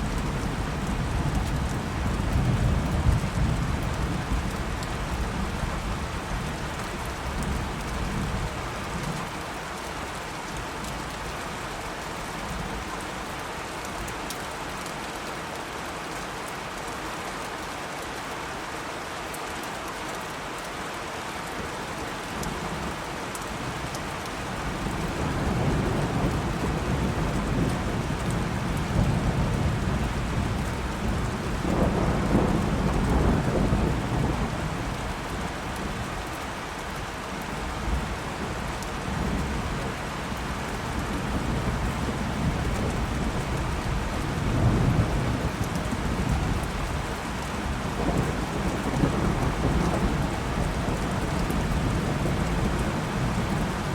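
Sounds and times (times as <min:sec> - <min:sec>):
steady rain falling: 0:00.0 - 0:53.9
rolling thunder: 0:41.3 - 0:53.9.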